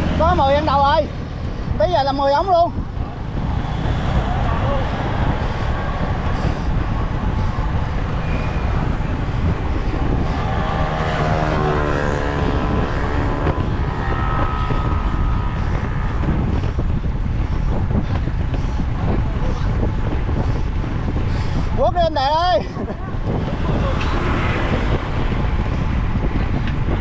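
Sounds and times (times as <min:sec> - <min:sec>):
vehicle engine passing: 0:00.0 - 0:01.7, 0:02.8 - 0:17.6, 0:23.2 - 0:26.6
wind buffeting microphone: 0:00.0 - 0:27.0.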